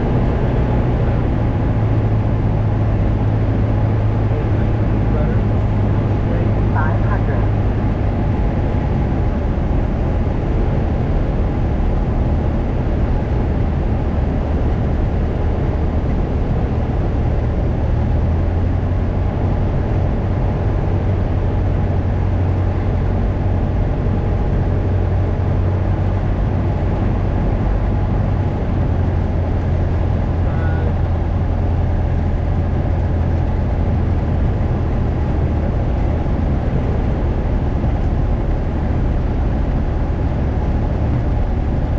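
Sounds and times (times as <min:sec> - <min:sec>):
propeller plane engine droning: 0:00.0 - 0:41.9.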